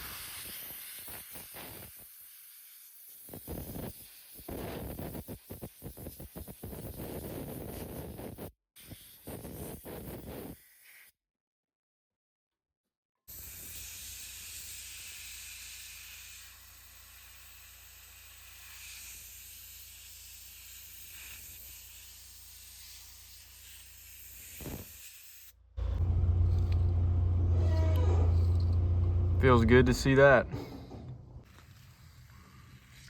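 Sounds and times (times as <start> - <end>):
spray gun hissing: 13.3 - 29.3
loud low hum: 25.8 - 31.4.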